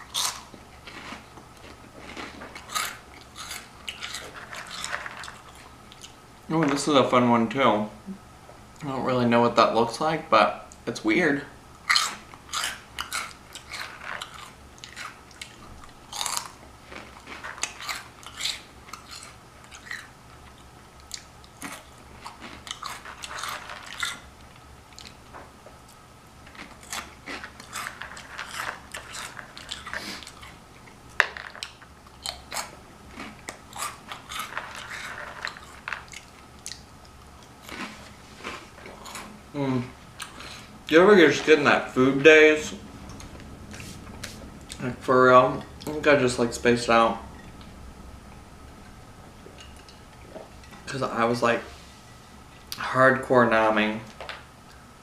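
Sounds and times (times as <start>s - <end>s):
chewing crunchy snacks: 0.0s - 6.2s, 11.8s - 25.3s, 25.9s - 40.8s.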